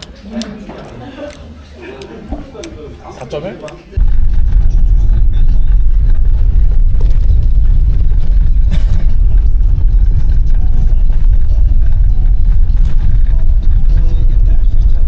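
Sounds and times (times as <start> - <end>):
car driving rumble: 4.0 - 15.0.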